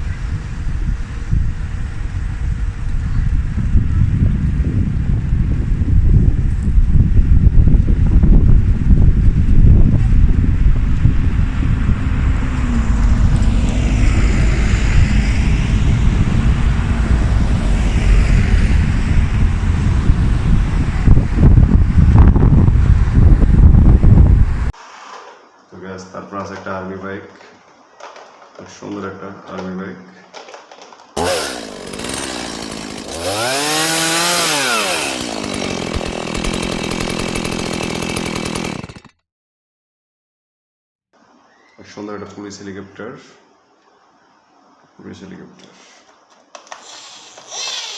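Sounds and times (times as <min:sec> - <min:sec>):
wind buffeting microphone: 0:00.0 - 0:24.8
vehicle whoosh: 0:10.9 - 0:24.7
motorcycle engine revving: 0:11.4 - 0:23.7, 0:31.2 - 0:38.0.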